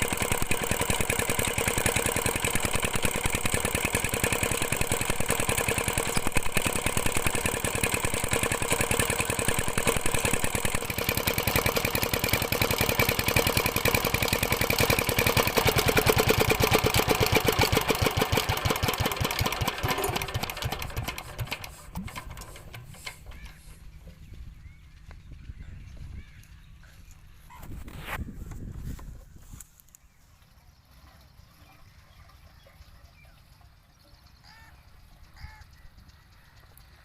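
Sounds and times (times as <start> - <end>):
diesel pump engine knocking: 0.0 - 26.2.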